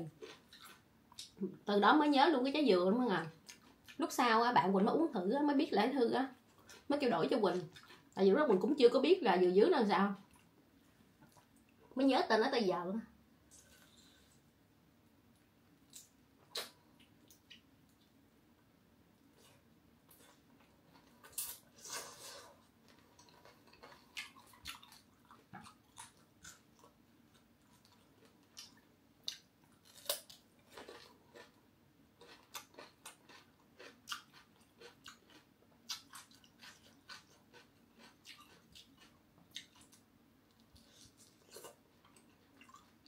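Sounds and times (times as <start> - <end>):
crunchy chewing: 0.1 - 1.4, 19.3 - 31.6, 32.2 - 43.0.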